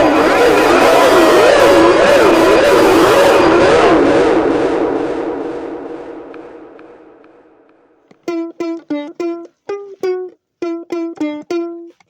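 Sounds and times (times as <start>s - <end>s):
wash of noise: 0.0s - 8.0s
ukulele plucking one note: 8.1s - 12.0s.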